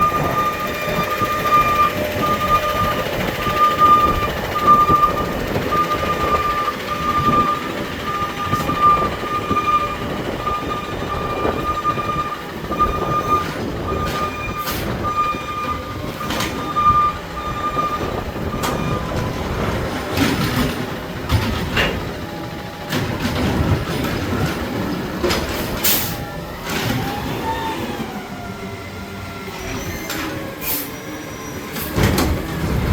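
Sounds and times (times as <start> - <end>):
backup alarm beeping: 0.0 - 19.6
diesel engine running: 0.0 - 30.1, 31.7 - 32.9.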